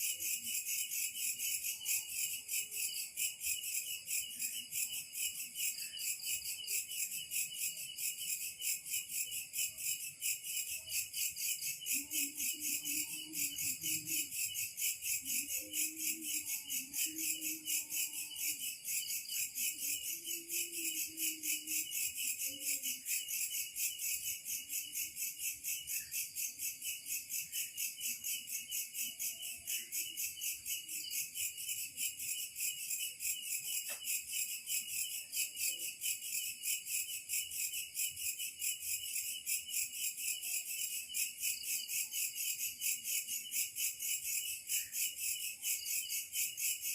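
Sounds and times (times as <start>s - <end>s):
insects chirping: 0.0s - 46.9s.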